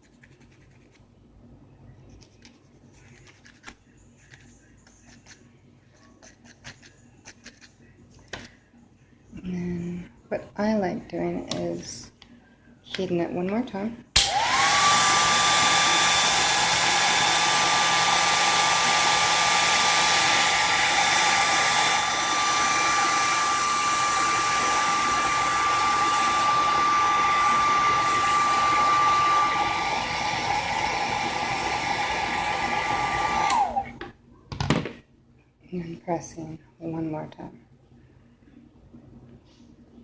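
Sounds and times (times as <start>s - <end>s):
hair dryer running: 14.2s - 34.1s.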